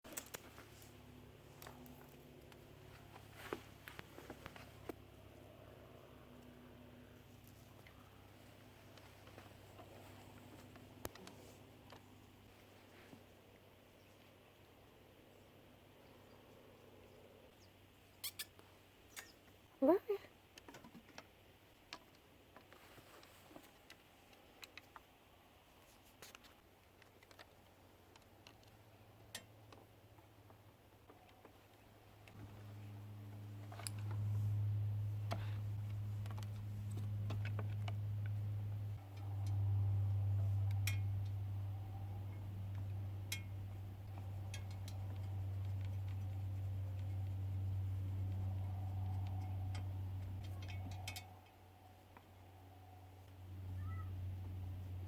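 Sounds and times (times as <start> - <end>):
faint small clicks and ticks: 0.1 - 5.0, 7.3 - 12.5, 20.5 - 32.6, 33.3 - 52.4
low hum: 0.1 - 17.8, 32.2 - 55.0.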